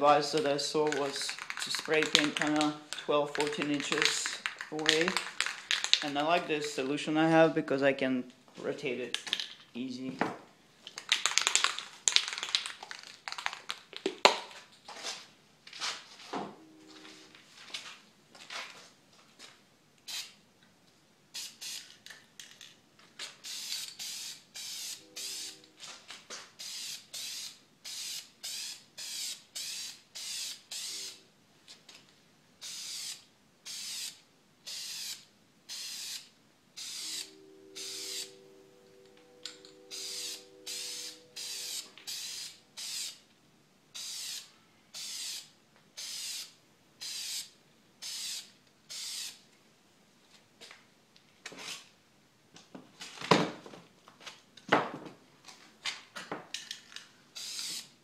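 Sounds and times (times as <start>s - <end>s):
clicks and rattles: 0.4s - 6.2s
aerosol spray can hissing: 39.9s - 43.2s, 57.4s - 57.9s.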